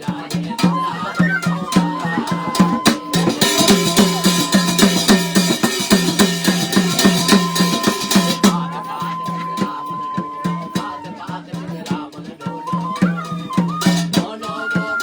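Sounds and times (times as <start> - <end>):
repeating folk melody: 0.0 - 11.2
fast dense drumming: 0.0 - 12.2
steady held high tone: 0.4 - 11.8.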